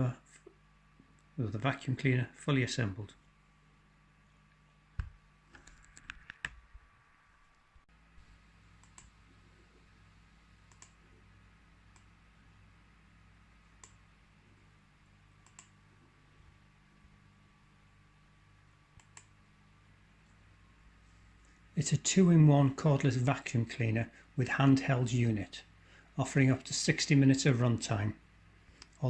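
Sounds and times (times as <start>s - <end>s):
low steady hum: 0.0s - 29.0s
sharp clicks: 10.7s - 11.0s, 13.8s - 14.0s, 15.4s - 15.7s, 19.0s - 19.3s.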